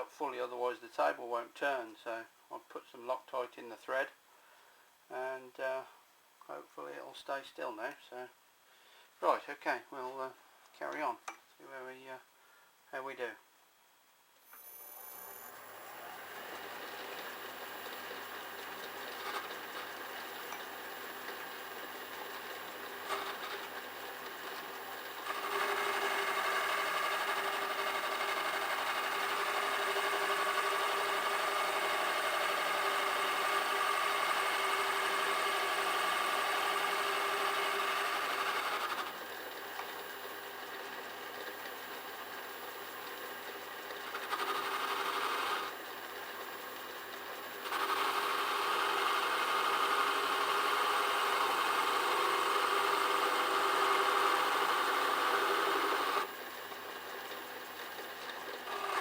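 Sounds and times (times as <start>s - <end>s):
lathe tool cutting metal: 15.5s - 39.2s, 47.6s - 56.3s, 58.6s - 59.0s
metal lathe running: 15.5s - 42.9s, 43.5s - 46.6s, 47.4s - 56.3s, 57.0s - 59.0s.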